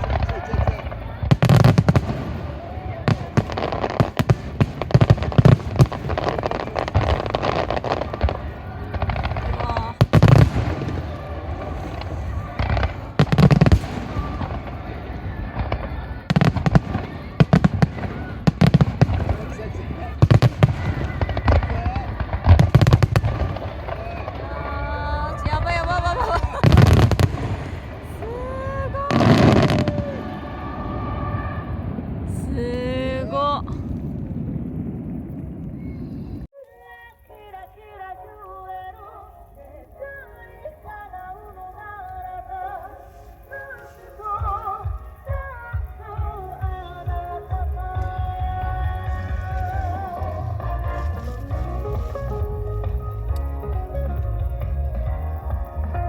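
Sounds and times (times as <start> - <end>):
deep fireworks booms: 0.0 - 36.5, 41.0 - 56.0
fireworks bangs and crackles: 0.0 - 36.5, 37.1 - 56.0.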